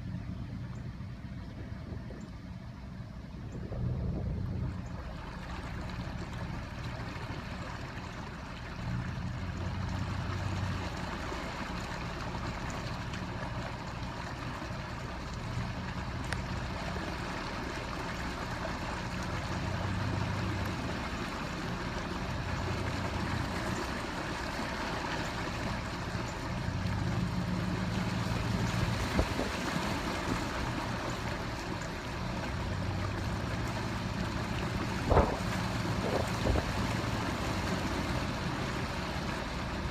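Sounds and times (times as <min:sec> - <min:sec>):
wind buffeting microphone: 0:00.0 - 0:07.0, 0:26.6 - 0:31.0, 0:32.2 - 0:39.9
floodwater rushing: 0:00.0 - 0:39.9.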